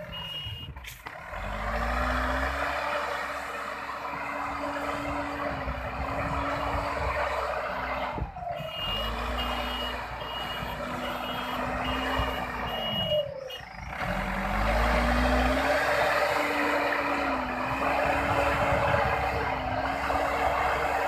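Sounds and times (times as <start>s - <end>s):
reversing alarm beeping: 0.0s - 0.8s, 8.5s - 13.9s
diesel engine under load: 0.0s - 21.0s.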